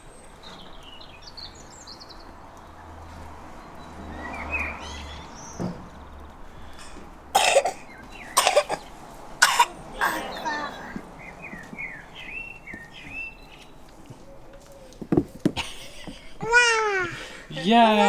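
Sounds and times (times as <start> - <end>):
birds chirping faintly: 0.0 - 18.0
person coughing: 7.4 - 7.8, 8.4 - 8.8, 9.4 - 11.0.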